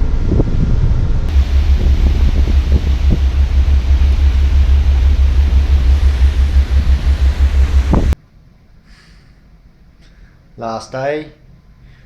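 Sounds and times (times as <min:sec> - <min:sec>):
wind buffeting microphone: 0:00.0 - 0:08.2
hiss of wind and sea: 0:01.3 - 0:08.2.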